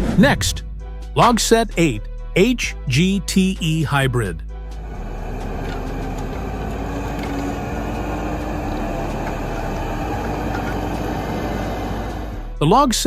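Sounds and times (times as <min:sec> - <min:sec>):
forestry harvester drone: 0:04.7 - 0:12.6.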